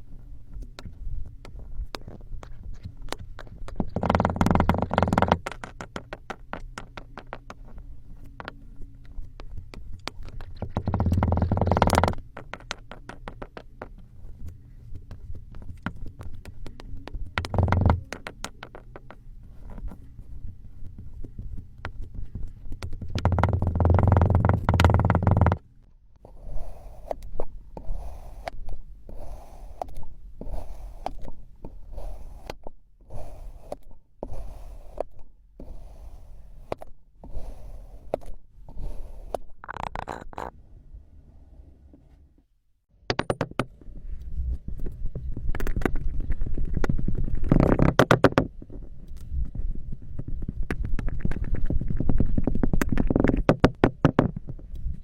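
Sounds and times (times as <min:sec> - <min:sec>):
knife slicing kinetic sand: 0:27.8 - 0:39.4.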